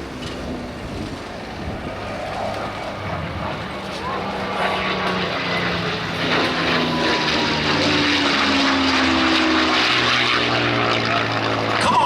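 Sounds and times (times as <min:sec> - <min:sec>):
propeller plane engine passing: 0:00.0 - 0:12.0.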